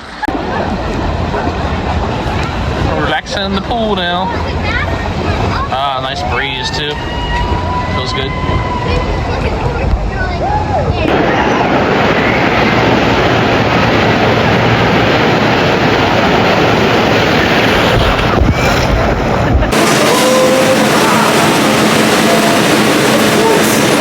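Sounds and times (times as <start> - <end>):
wind buffeting microphone: 0.3 - 24.0.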